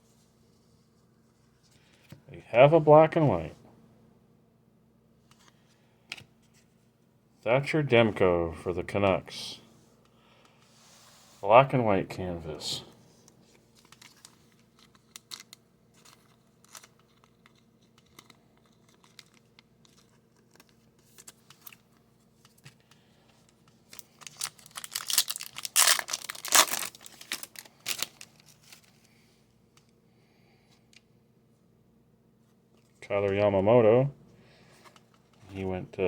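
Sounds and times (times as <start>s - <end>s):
wrapper tearing and crinkling: 13.8s - 21.7s, 23.8s - 28.9s.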